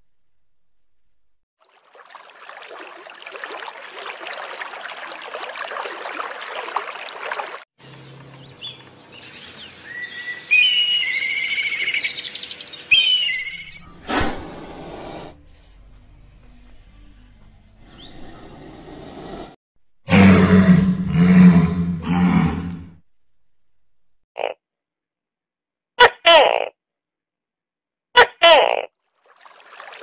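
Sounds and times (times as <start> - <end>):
weak bird chirps: 7.9 - 14.1, 17.8 - 18.7
bird whistled calls: 8.6 - 14.0
bubbling water hiss: 14.0 - 15.4.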